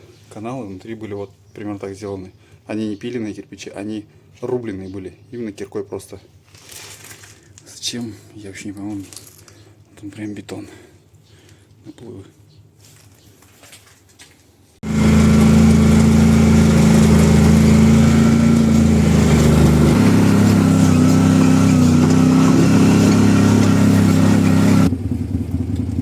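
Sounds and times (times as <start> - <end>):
engine idling: 14.8 - 26.0.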